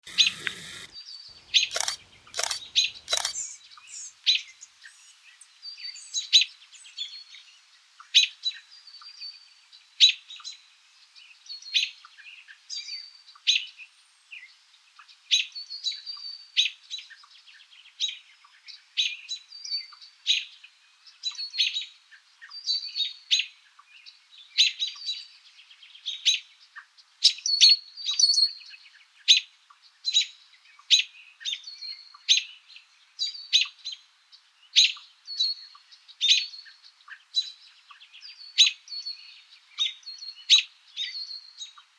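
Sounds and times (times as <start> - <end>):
sharp clicks: 0.0 - 3.6
small birds chirping: 0.0 - 9.4, 22.4 - 41.9.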